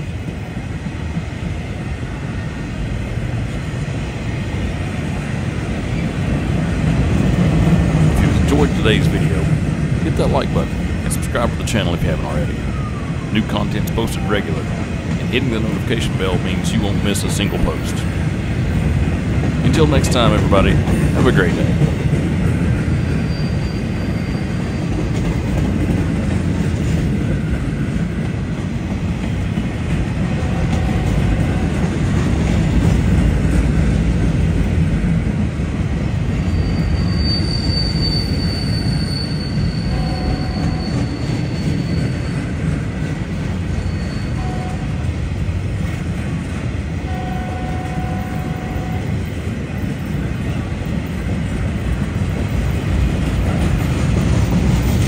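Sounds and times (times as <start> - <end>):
freight train rolling past: 0.0 - 55.0
high wheel squeal: 23.0 - 25.2, 36.2 - 45.1.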